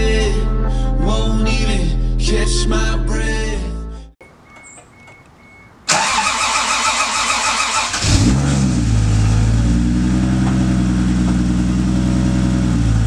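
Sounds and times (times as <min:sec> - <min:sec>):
engine starter cranking: 0:04.4 - 0:08.8
car engine revving and idling: 0:05.4 - 0:13.0.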